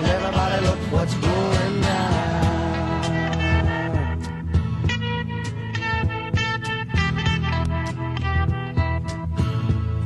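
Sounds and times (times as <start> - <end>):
steady drum beat: 0.0 - 7.5
bass: 0.0 - 10.0
plucked electric guitar notes: 0.0 - 10.0.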